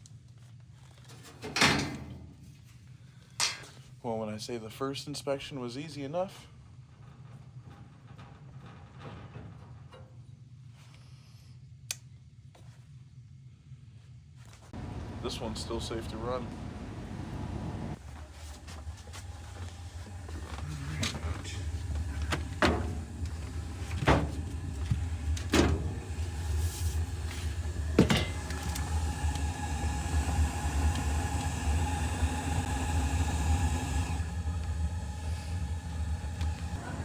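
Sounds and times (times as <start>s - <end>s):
gas furnace humming: 14.8s - 37.0s
steady whine: 14.8s - 37.0s.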